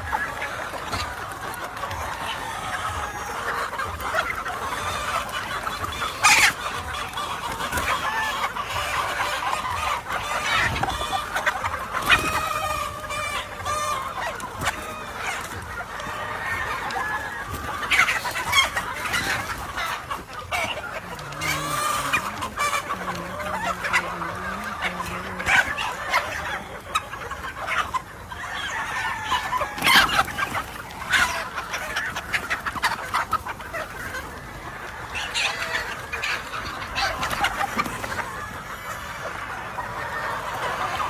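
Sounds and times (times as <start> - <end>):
roosters crowing: 0.0 - 27.1, 28.1 - 32.2
chickens clucking: 0.0 - 41.0.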